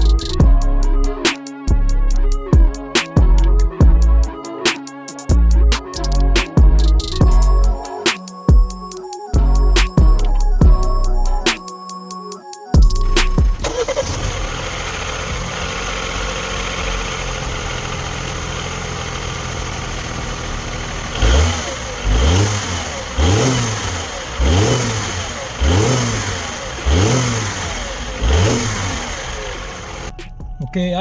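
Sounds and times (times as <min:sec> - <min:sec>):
car engine idling and revving: 0:13.0 - 0:30.3.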